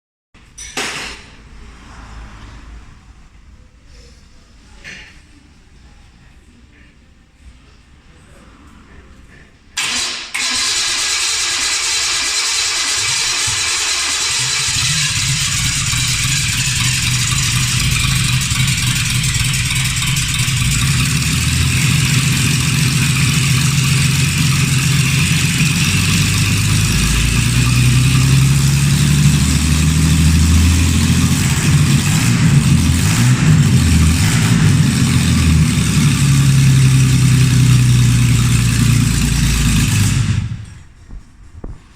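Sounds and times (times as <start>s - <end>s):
car engine starting and running: 1.1s - 3.8s, 9.8s - 41.0s.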